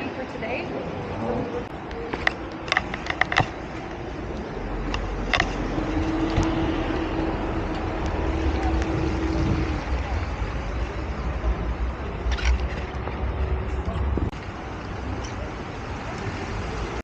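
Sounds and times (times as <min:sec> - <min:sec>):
outdoor street noise: 0:00.0 - 0:17.0
sharp clicks and rattles: 0:02.1 - 0:06.5
low rumble: 0:04.1 - 0:14.4.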